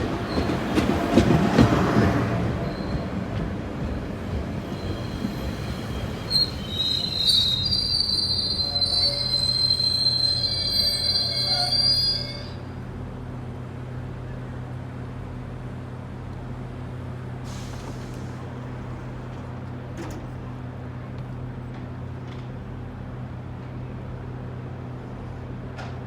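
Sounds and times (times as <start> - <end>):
diesel locomotive low hum: 0.0 - 26.0
train metallic squeal: 2.6 - 3.2, 4.6 - 12.8.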